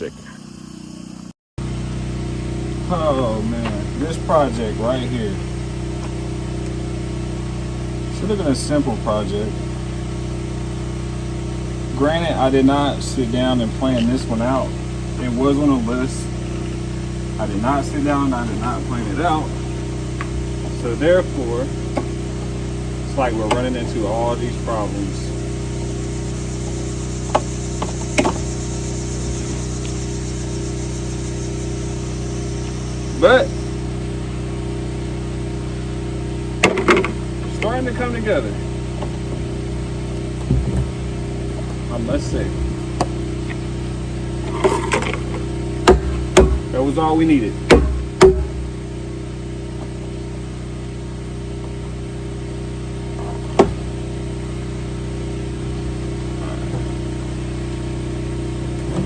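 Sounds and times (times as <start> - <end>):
engine drone: 0.0 - 59.0
low mechanical hum: 0.0 - 59.0
sharp knock: 45.9 - 46.7, 47.7 - 48.7.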